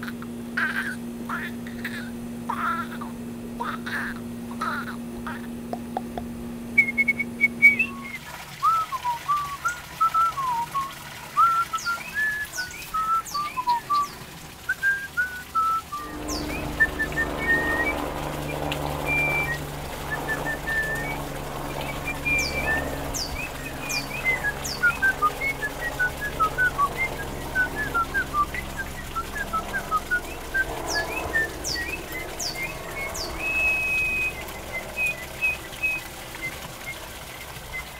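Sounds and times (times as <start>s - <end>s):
quick whistled notes: 6.8s - 37.9s
high falling chirps: 16.0s - 36.1s.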